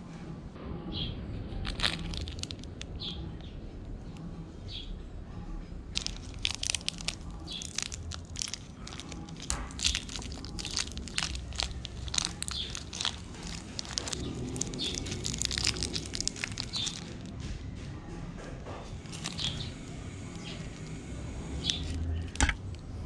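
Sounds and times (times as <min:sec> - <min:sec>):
person chewing: 0:01.6 - 0:02.9, 0:06.0 - 0:17.3, 0:19.0 - 0:22.8.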